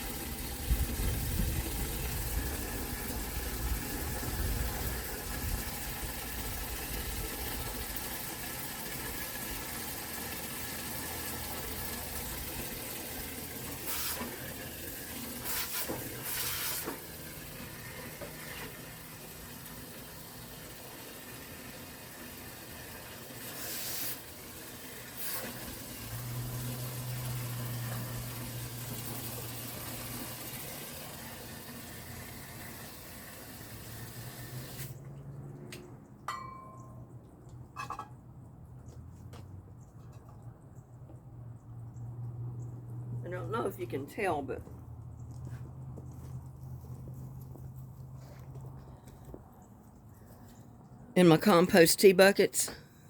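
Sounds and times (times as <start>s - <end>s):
water running into a bucket: 0.0s - 35.0s.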